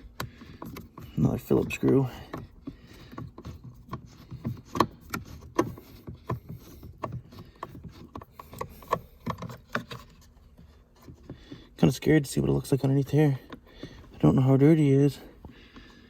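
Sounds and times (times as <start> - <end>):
screwdriver clicking on plastic: 0.0 - 11.6.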